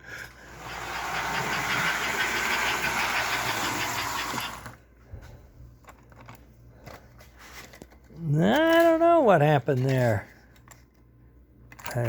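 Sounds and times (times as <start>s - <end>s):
toy train rattling on track: 0.2s - 4.8s.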